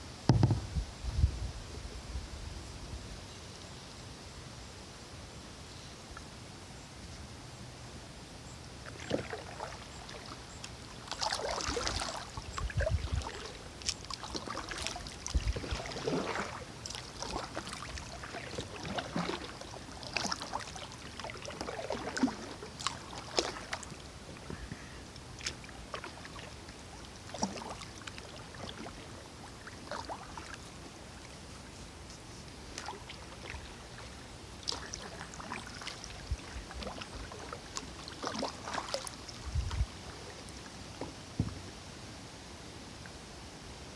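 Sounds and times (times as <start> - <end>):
low knocks: 0.3 - 0.8
paddle splashing in water: 8.8 - 41.8.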